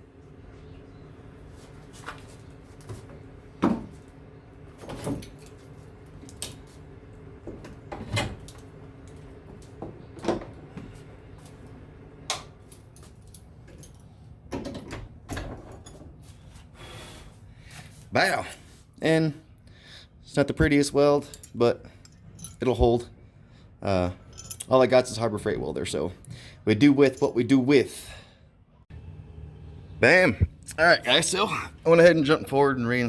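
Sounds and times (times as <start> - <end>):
metal parts knocking and clanking: 24.2 - 24.7
steady low hum: 27.8 - 33.0.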